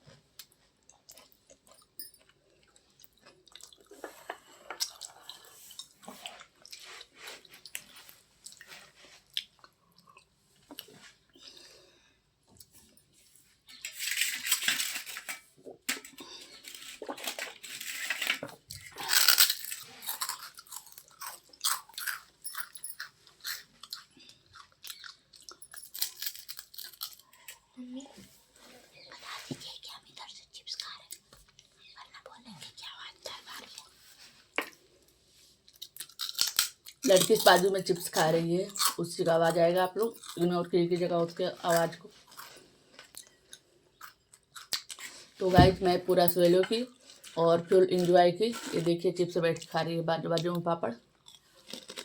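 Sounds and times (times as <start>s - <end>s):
chewing crunchy chips: 0.4s - 10.9s, 16.0s - 27.7s, 35.7s - 40.5s, 41.6s - 45.3s, 51.1s - 52.0s.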